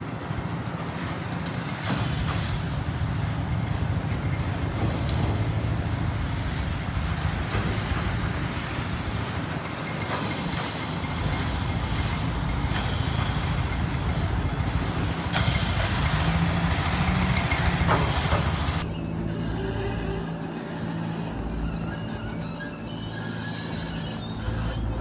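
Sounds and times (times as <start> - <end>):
engine running: 0.0 - 25.0
rushing hiss: 1.8 - 18.8.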